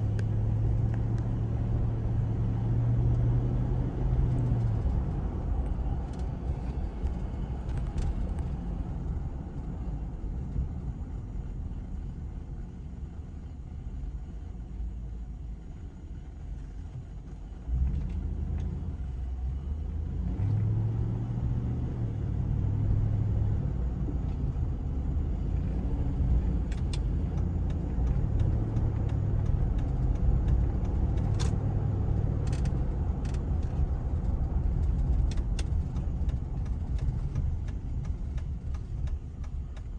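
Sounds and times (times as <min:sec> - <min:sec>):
engine rumbling: 0:00.0 - 0:39.9.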